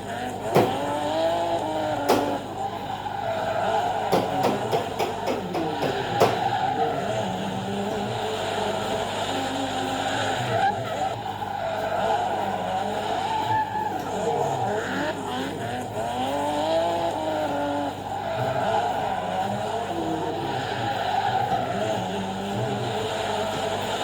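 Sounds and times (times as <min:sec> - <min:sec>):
car engine revving: 0:00.0 - 0:24.0
tyre squeal: 0:00.0 - 0:24.0.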